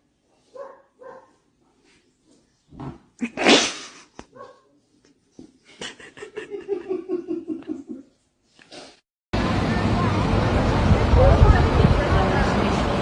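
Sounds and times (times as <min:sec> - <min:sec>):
animal breathy burst: 0:03.2 - 0:04.2.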